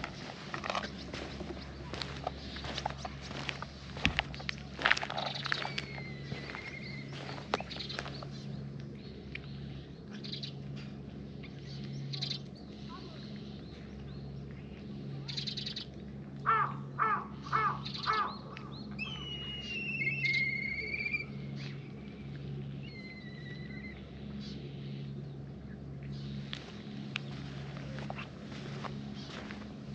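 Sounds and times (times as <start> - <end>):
cats crunching food: 0.0 - 12.6
bird calling: 0.0 - 29.8
steady low hum: 0.0 - 29.9
high whistled bird calls: 5.2 - 8.3, 17.7 - 22.1.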